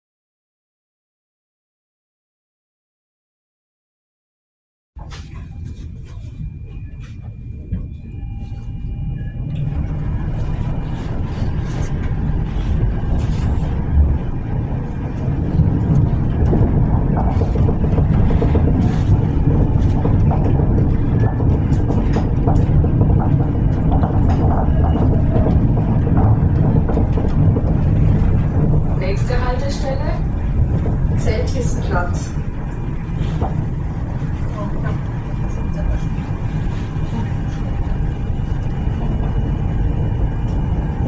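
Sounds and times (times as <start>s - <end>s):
tram rumbling: 5.0s - 41.0s
wheel and body clicks and rattles: 10.9s - 29.7s.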